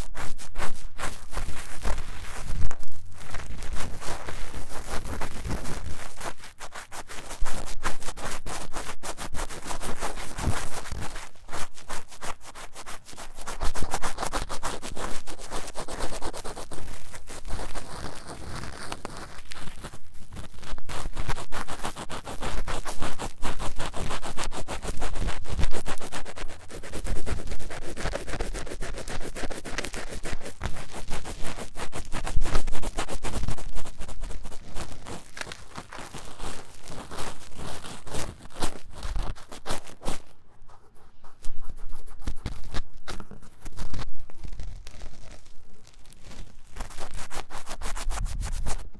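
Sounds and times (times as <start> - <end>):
tool scraping microphone ear: 22.3 - 48.9.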